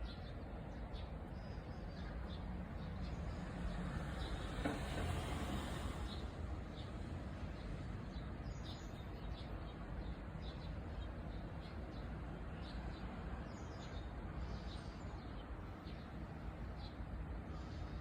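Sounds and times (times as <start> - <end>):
small birds chirping: 6.0 - 18.0.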